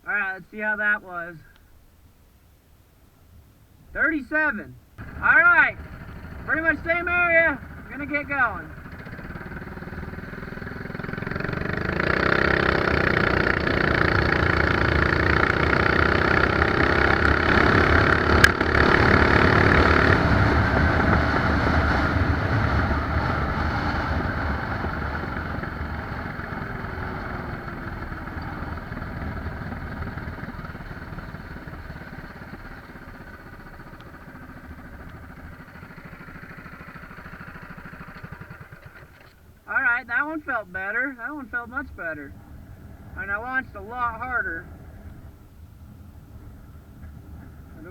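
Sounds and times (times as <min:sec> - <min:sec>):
small motorbike engine revving: 0:05.0 - 0:39.6.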